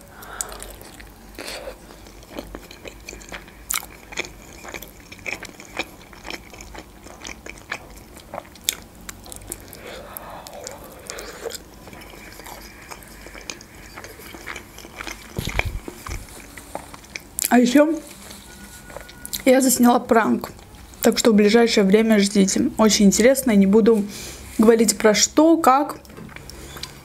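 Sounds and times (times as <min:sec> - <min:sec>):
wet chewing with mouth clicks: 0:00.2 - 0:19.5, 0:26.0 - 0:27.0
biting into soft dough: 0:13.5 - 0:17.2.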